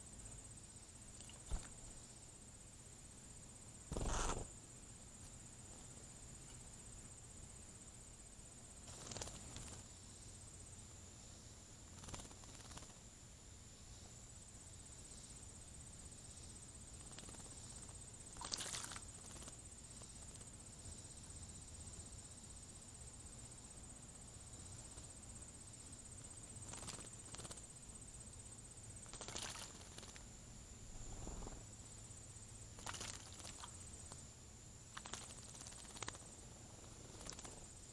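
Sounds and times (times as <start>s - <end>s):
high-pitched insect trill: 3.6s - 4.5s, 8.7s - 37.9s.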